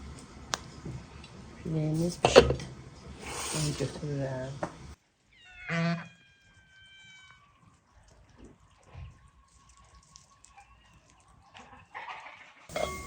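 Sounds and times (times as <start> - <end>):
animal call: 5.3 - 7.8.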